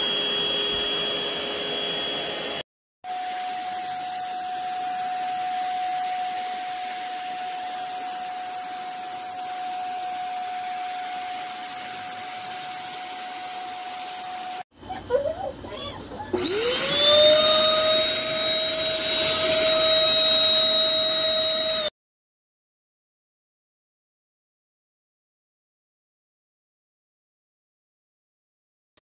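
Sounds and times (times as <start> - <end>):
handheld vacuum motor whining: 0.0 - 14.6, 16.3 - 21.9.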